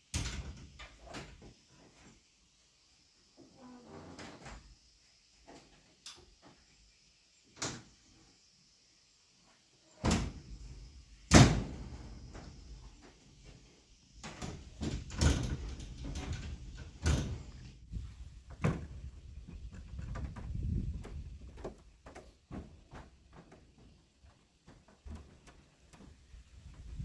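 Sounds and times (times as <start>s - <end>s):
wooden knocks and thuds: 18.5s - 26.2s.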